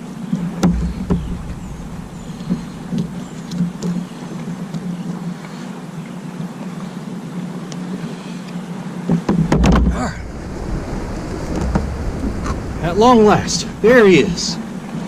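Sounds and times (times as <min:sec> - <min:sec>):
motorboat engine droning: 0:00.0 - 0:05.2, 0:09.8 - 0:15.0
loud knocks and splashes: 0:00.5 - 0:04.7, 0:09.1 - 0:15.0.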